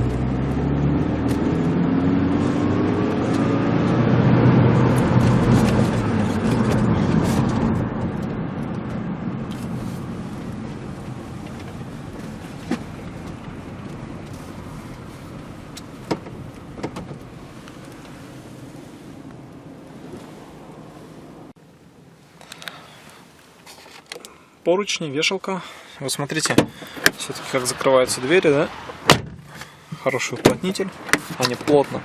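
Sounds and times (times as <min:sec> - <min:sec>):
vehicle engine accelerating: 0:00.0 - 0:18.6.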